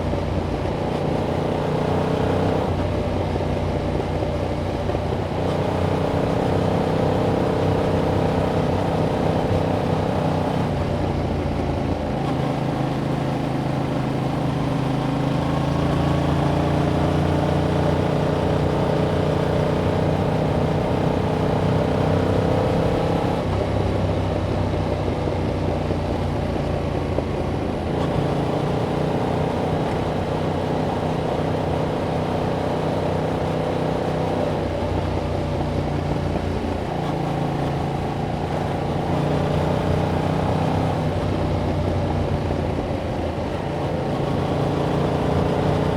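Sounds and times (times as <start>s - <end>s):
motorcycle engine while riding: 0.0s - 45.9s.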